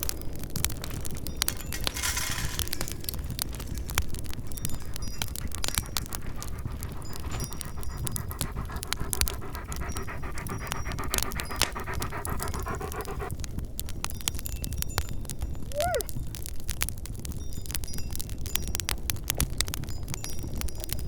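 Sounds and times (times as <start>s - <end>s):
wood fire crackling: 0.0s - 21.0s
dog panting: 1.5s - 13.5s.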